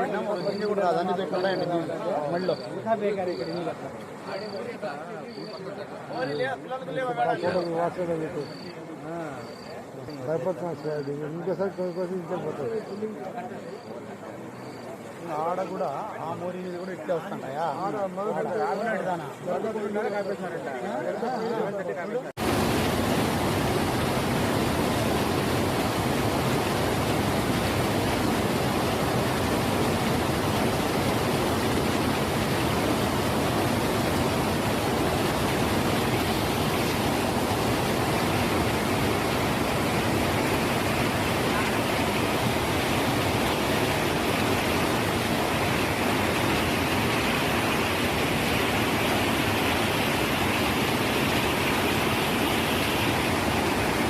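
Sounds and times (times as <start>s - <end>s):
floodwater rushing: 22.4s - 54.0s.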